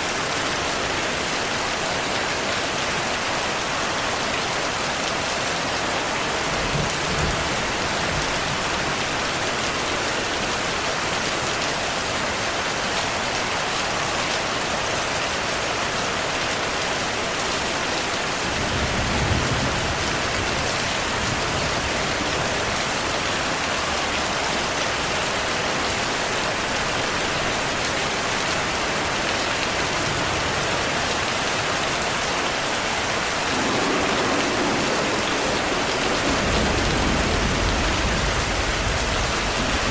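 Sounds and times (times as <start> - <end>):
heavy rain: 0.0 - 39.9
low thunder rumbling: 33.0 - 39.9.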